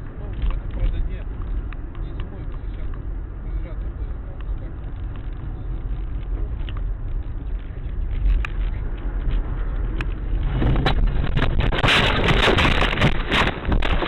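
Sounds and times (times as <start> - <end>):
car interior road rumble: 0.0 - 14.0
car crash crunching and scraping: 10.4 - 14.0.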